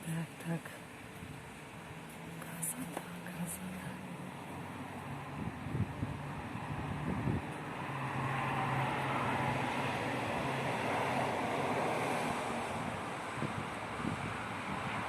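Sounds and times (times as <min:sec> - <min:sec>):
wind buffeting microphone: 0:05.2 - 0:15.0.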